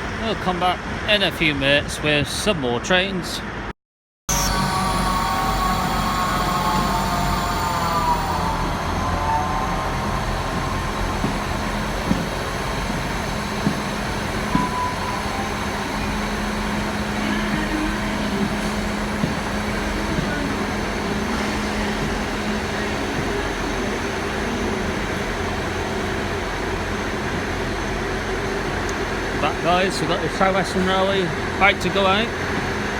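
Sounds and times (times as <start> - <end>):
falling whine: 4.3 - 30.6
diesel train engine hum: 4.3 - 32.9
knocks: 10.5 - 14.9.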